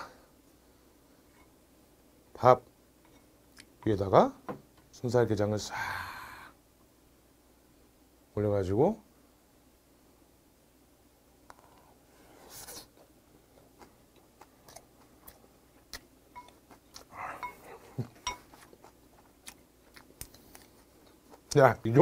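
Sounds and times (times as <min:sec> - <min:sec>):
breathy hiss: 0:05.6 - 0:06.6
close chewing with mouth clicks: 0:12.7 - 0:21.6.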